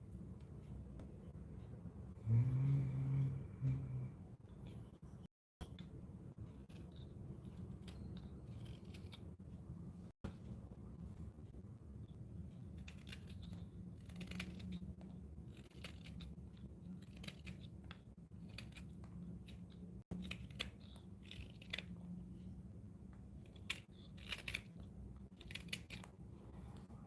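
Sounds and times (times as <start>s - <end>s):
low steady hum: 0.0s - 27.0s
carving tool scraping wood: 6.6s - 9.2s.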